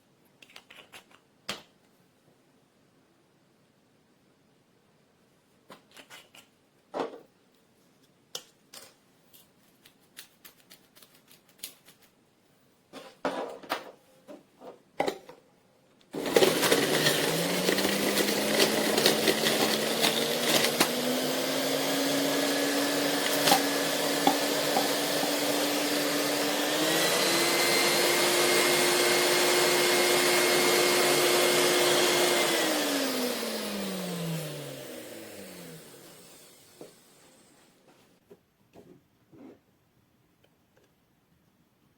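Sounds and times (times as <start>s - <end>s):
juicer motor running: 16.2s - 37.0s.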